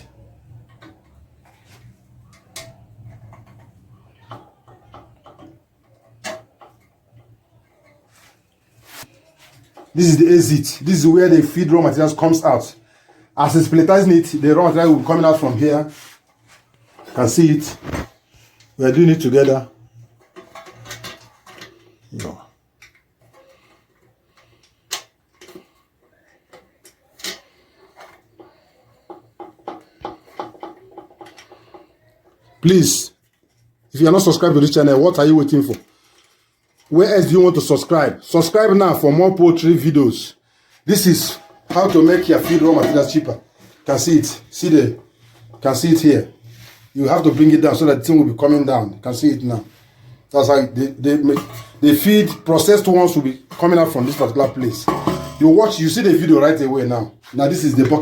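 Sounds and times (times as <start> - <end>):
handling knocks and clicks: 51.2 - 55.7.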